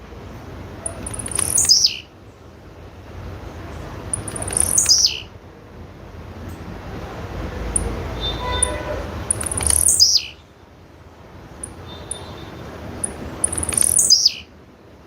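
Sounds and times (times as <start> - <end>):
bird calling high stutter: 0.8 - 2.1, 4.1 - 5.3, 7.8 - 10.4, 13.0 - 14.5.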